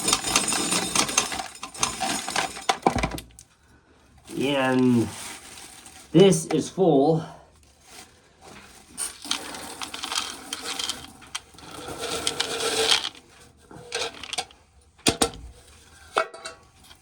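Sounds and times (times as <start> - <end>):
corn kernels rattling in container: 0.0 - 2.9, 8.9 - 14.6.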